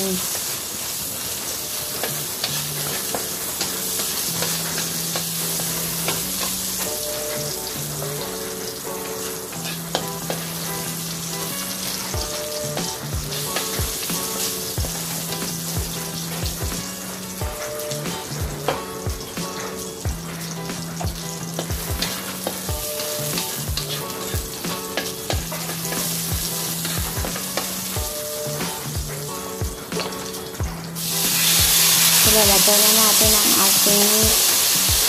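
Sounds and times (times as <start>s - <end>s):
garlic and onion sizzling: 0.0s - 35.0s
soft music of held notes: 0.0s - 35.0s.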